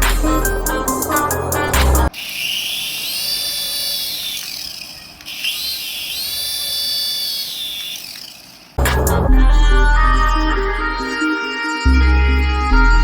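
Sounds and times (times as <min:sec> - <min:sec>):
electric toy motor whining: 0:02.1 - 0:08.8.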